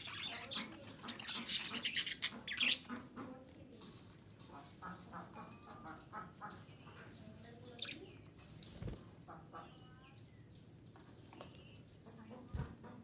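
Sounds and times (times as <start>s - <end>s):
budgerigar chattering: 0.0s - 3.1s.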